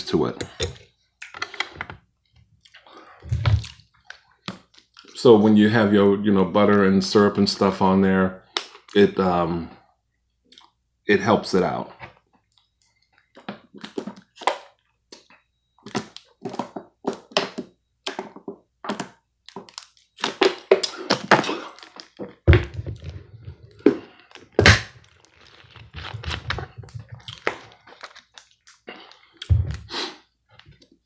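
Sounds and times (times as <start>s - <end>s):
chewing: 19.5s - 22.4s, 23.5s - 31.0s.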